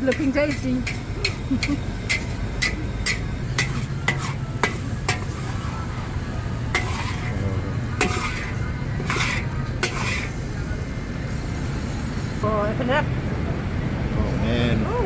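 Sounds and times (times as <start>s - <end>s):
spatula scraping wok: 0.0s - 11.5s
metal spatula knocking on wok: 0.1s - 5.3s, 8.0s - 10.3s.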